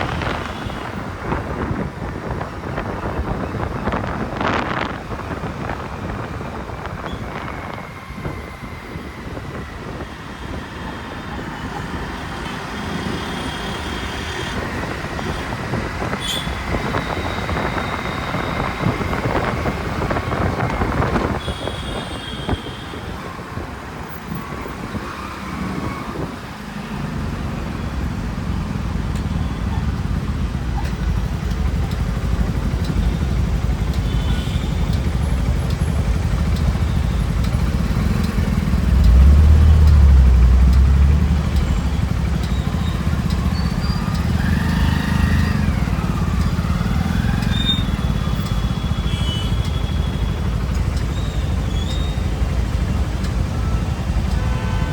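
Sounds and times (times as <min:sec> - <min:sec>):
motorcycle engine and tyre noise: 0:00.0 - 0:54.9
passing vehicles: 0:00.0 - 0:54.9.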